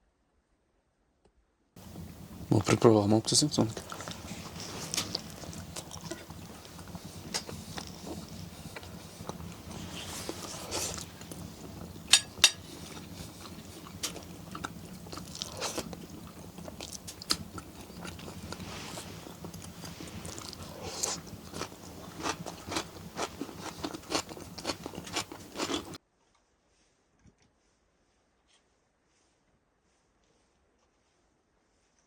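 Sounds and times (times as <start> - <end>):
close crunching and crackling: 1.8 - 26.0.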